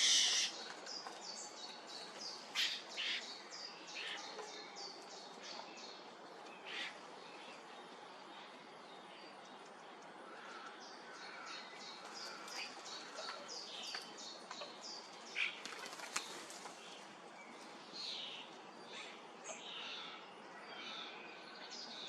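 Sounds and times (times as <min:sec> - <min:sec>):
bird calls: 0:00.0 - 0:05.7
songbirds chirping: 0:00.0 - 0:22.0
wings fluttering: 0:15.5 - 0:16.9.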